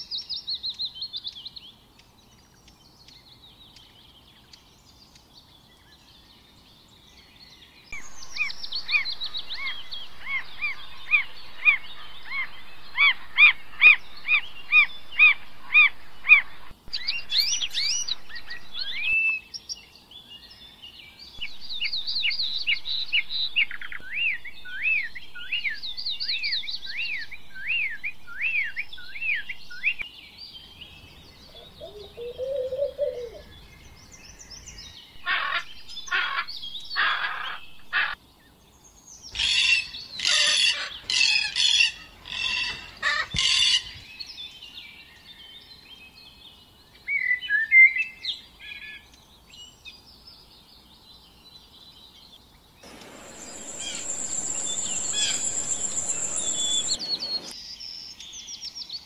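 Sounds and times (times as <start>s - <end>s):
bird chirps: 7.9s - 19.5s, 21.4s - 30.0s, 52.8s - 57.6s
downward-sweeping bird whistles: 8.0s - 19.5s, 21.4s - 30.0s, 52.8s - 57.6s
harsh bird squawks: 8.3s - 19.2s, 35.2s - 38.2s, 52.9s - 57.5s.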